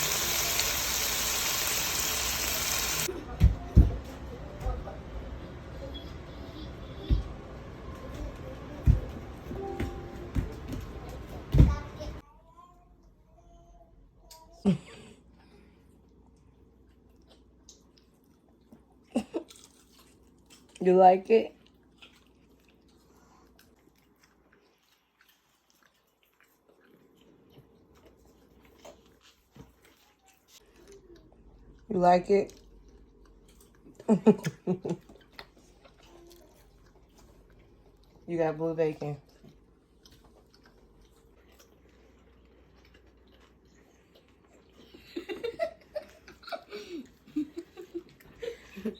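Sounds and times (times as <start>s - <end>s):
child giggling: 14.4s - 15.3s, 44.8s - 48.9s
person chewing: 15.9s - 20.8s, 21.6s - 31.9s, 32.5s - 38.2s, 39.3s - 45.0s.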